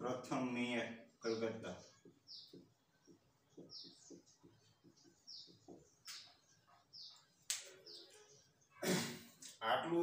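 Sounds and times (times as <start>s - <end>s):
small bird chirping: 0.6s - 9.7s
marker writing on a whiteboard: 1.3s - 8.6s.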